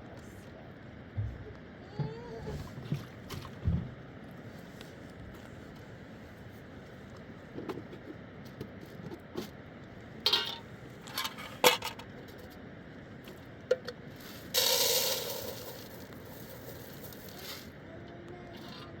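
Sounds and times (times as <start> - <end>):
metal pots and utensils clanking: 10.3 - 12.0
rushing hiss: 14.2 - 17.7.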